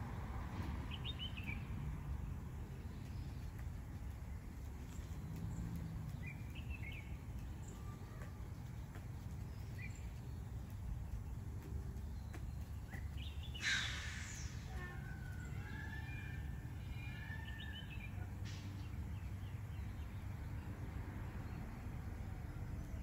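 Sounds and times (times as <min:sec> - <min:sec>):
low background rumble: 0:00.0 - 0:23.0
short hissing burst: 0:13.6 - 0:14.7.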